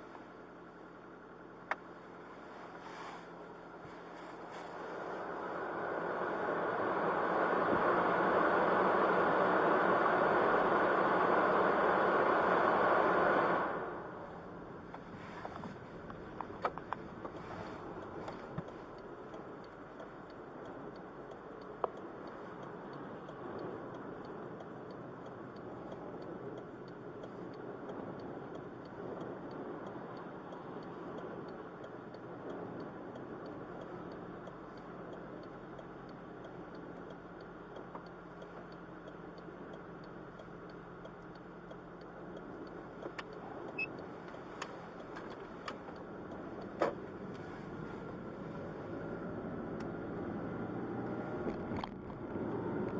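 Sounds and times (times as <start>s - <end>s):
vehicle rumble in motion: 0.0s - 52.9s
sharp clicks: 14.9s - 47.4s.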